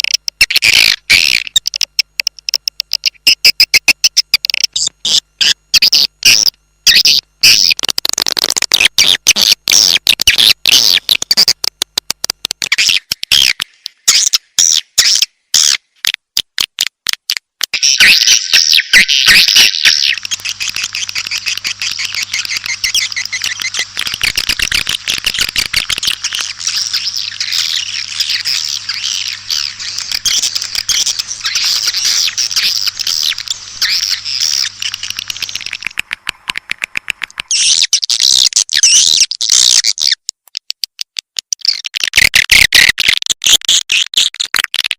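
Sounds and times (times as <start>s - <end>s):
swiftlet chirps and twittering: 17.8s - 35.9s
faint low hum: 19.1s - 37.8s.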